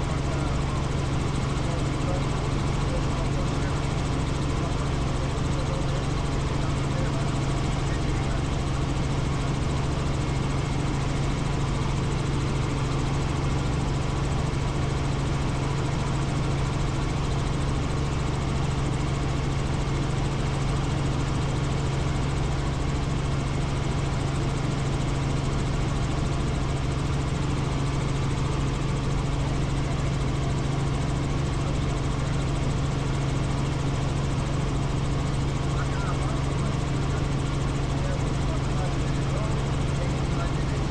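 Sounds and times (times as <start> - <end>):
helicopter turbine and rotor: 0.0 - 40.9.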